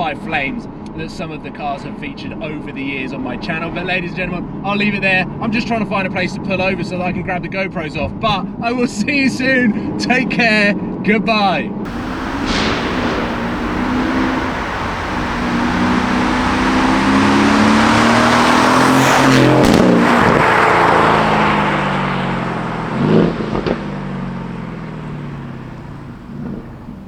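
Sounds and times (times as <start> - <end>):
exhaust cracks: 11.9 - 23.9
car engine accelerating: 11.9 - 27.0.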